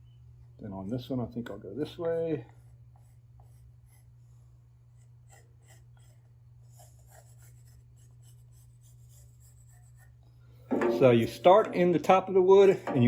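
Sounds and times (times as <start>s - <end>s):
steady low hum: 0.0s - 13.0s
pencil scratching on plywood: 4.9s - 10.2s.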